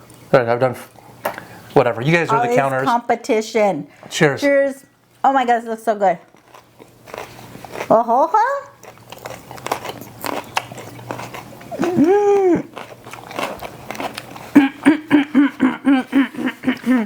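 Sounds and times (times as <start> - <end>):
person chewing crunchy pepper: 6.2 - 17.0
short hummed pulses: 11.7 - 12.7
person humming mmm: 11.7 - 12.8, 14.5 - 17.0.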